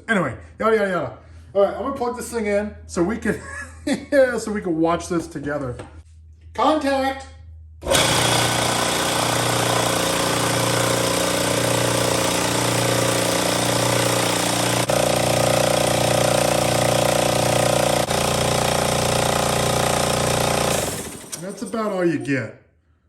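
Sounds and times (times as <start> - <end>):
air compressor running: 7.8 - 21.8.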